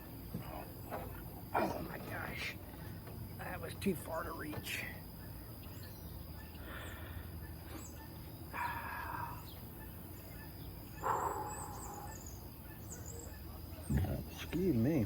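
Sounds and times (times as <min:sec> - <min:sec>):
animal calls: 0:06.3 - 0:14.6.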